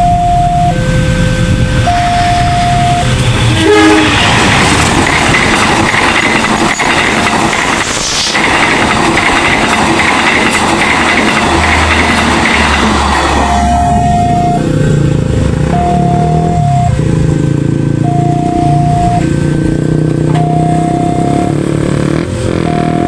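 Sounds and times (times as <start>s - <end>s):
electronic crossing warning tone: 0.0s - 4.2s, 11.0s - 23.0s
train horn blast: 0.7s - 4.4s, 12.8s - 14.8s
train wheels clattering: 3.1s - 15.8s.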